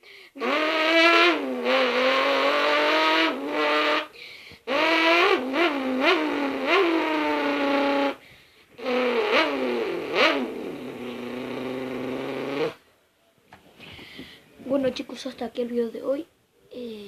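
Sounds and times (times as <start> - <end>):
person imitating car engine: 0.0 - 8.2, 8.8 - 12.8.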